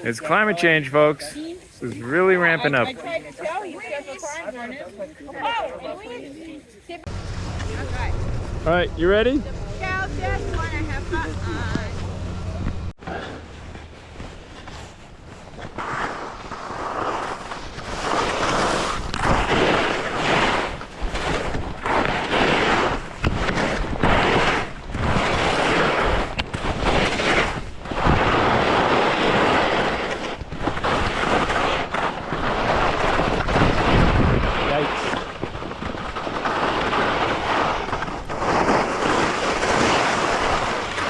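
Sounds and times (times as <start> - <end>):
skis scraping on snow: 0.0 - 41.0
wind rushing over microphone: 15.2 - 41.0.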